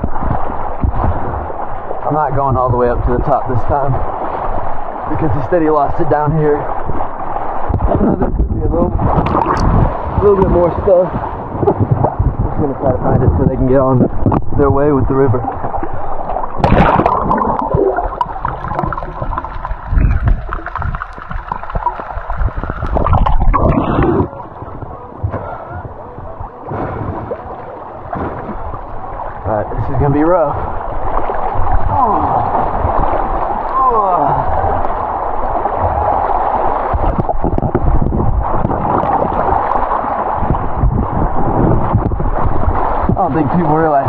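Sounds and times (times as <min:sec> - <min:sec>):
knocks in water: 0:09.0 - 0:10.6, 0:16.4 - 0:25.5, 0:28.1 - 0:28.6
river water gurgling: 0:09.2 - 0:11.0, 0:15.1 - 0:37.8, 0:38.4 - 0:40.8.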